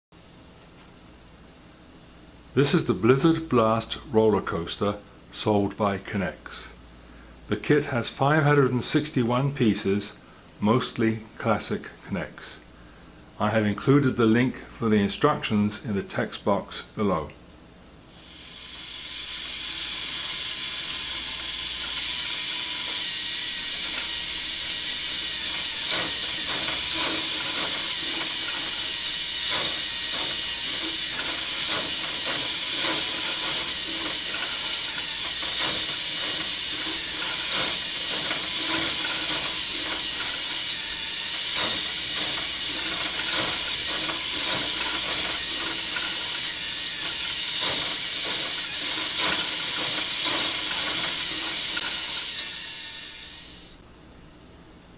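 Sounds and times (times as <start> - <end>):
small motor whirring: 18.2 - 53.8
plastic parts clattering and clicking: 25.2 - 52.5.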